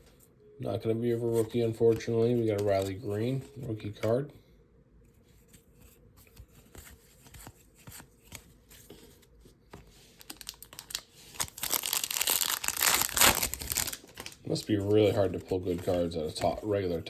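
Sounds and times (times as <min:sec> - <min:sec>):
foil wrapper tearing: 0:10.2 - 0:14.6.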